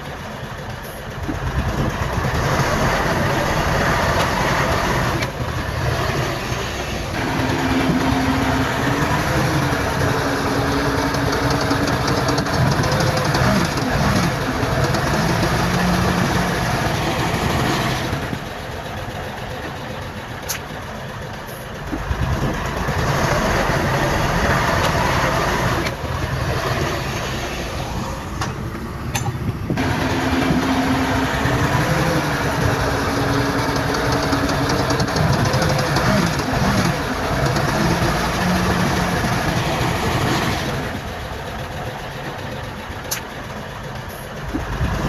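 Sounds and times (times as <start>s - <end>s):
heavy diesel machinery engine: 0.0s - 45.0s.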